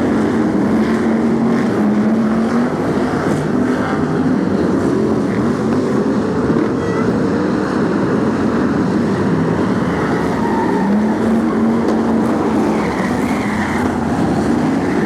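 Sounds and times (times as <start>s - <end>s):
racing car engines: 0.0s - 15.0s.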